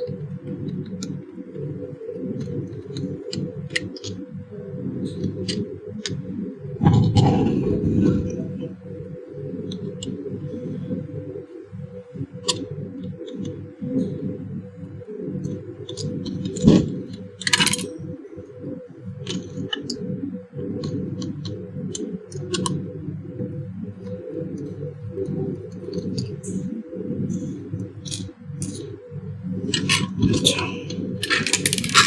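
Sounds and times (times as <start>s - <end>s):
brief rattle: 6.8s - 8.7s
clicks and scrapes of plastic parts: 15.9s - 17.9s, 28.1s - 28.8s, 29.7s - 32.0s.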